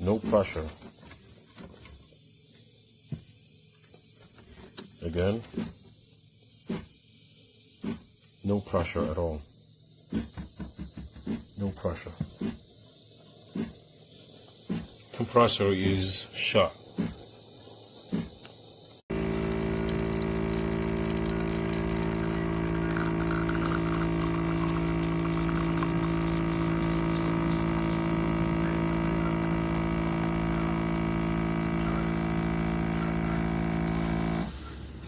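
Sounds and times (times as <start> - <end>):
espresso machine pump humming: 18.9 - 35.0.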